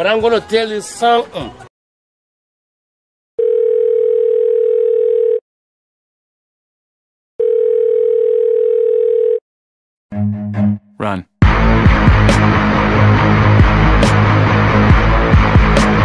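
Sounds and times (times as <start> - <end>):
telephone ringback tone: 3.4 - 5.4, 7.4 - 9.4.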